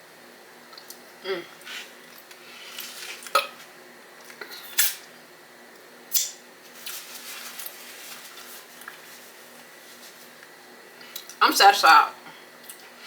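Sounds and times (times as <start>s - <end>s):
wet mouth smacks: 6.1s - 6.4s
soft chewing: 6.8s - 11.4s.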